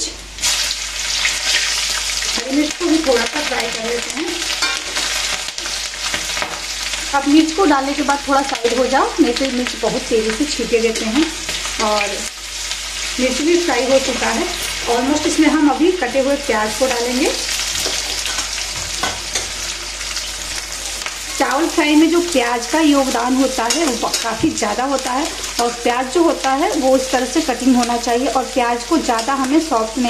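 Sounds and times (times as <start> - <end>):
garlic sizzling in hot oil: 0.0 - 30.0
spoon scraping metal pan: 23.5 - 24.4.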